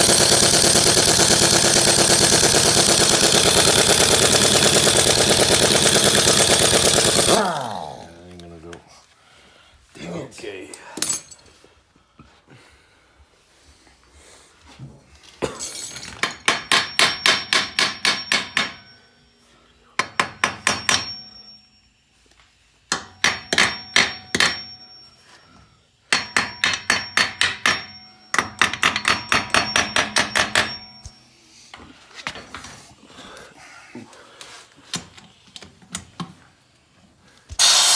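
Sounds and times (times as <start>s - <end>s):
pneumatic impact wrench hammering: 0.0s - 8.1s, 16.2s - 18.9s, 26.1s - 30.9s, 37.5s - 37.9s.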